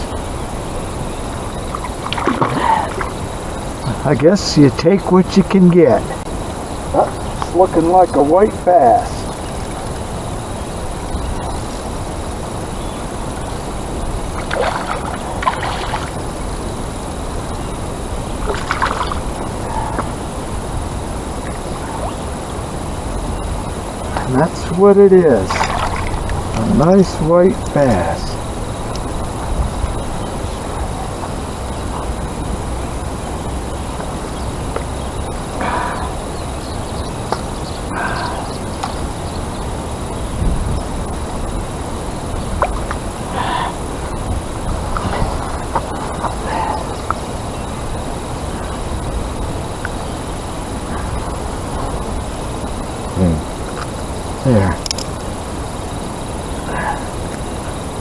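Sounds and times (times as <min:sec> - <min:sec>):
river water flowing: 0:00.0 - 0:58.0
rushing outdoor background noise: 0:00.0 - 0:58.0
short splashes: 0:01.7 - 0:03.3, 0:14.4 - 0:16.3, 0:18.4 - 0:20.1, 0:24.1 - 0:28.4
wind rumble: 0:06.0 - 0:58.0
short bird calls: 0:35.6 - 0:39.5.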